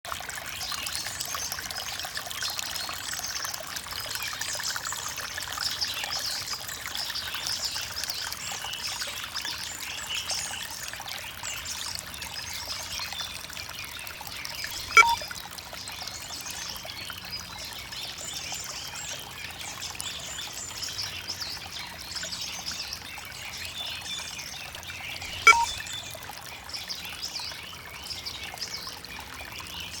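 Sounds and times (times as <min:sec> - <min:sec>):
water trickling and pouring: 0:00.1 - 0:30.0
birds calling: 0:14.6 - 0:15.2, 0:25.1 - 0:25.8
sharp plink: 0:14.7 - 0:15.3, 0:25.3 - 0:25.8.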